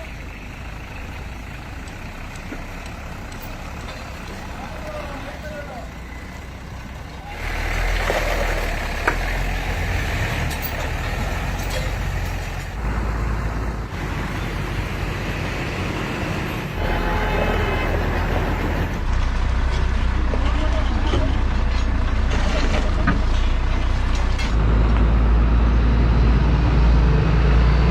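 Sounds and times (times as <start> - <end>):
diesel truck engine running: 0.0 - 27.9.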